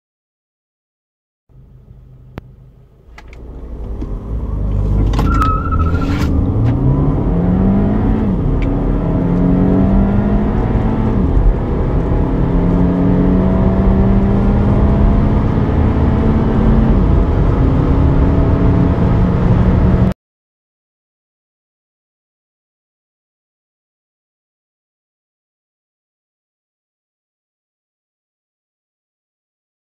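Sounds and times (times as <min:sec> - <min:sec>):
car engine accelerating hard: 0:01.5 - 0:20.2.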